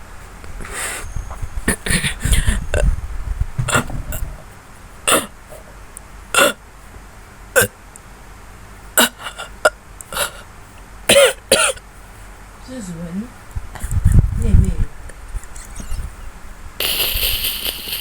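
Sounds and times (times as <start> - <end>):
person burping: 5.1 - 5.4, 6.3 - 6.6, 7.6 - 7.8, 9.0 - 10.3.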